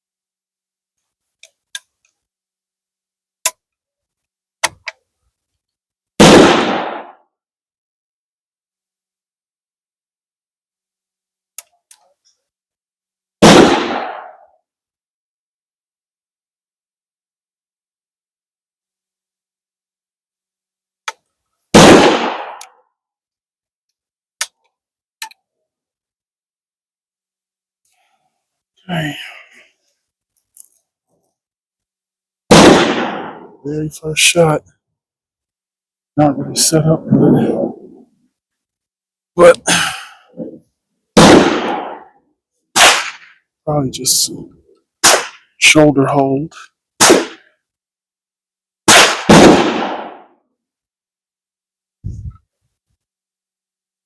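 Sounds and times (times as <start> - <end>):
loud gunshot: 6.2 - 7.2, 13.4 - 14.4, 21.8 - 22.6, 32.5 - 33.6, 41.2 - 42.1, 42.8 - 43.3, 45.0 - 45.4, 47.0 - 47.4, 48.9 - 50.3
rifle shot: 6.2 - 7.2, 13.4 - 14.4, 21.8 - 22.6, 32.5 - 33.6, 41.2 - 42.1, 42.8 - 43.3, 45.0 - 45.5, 47.0 - 47.4, 48.9 - 50.3.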